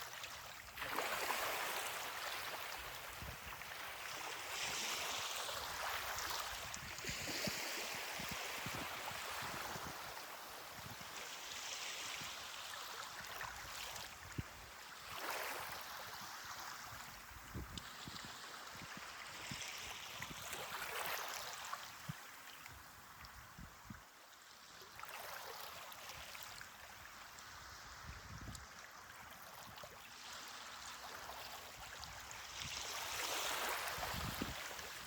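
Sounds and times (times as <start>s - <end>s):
ocean waves breaking on beach: 0.0s - 17.6s, 30.1s - 35.0s.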